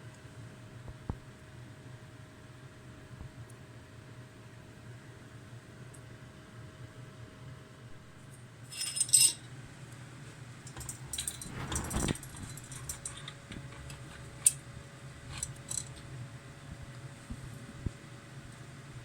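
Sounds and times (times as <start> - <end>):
steady low hum: 7.8 - 19.0
metal tools clinking: 8.7 - 9.5, 10.7 - 14.1
brief scrape: 11.3 - 12.2.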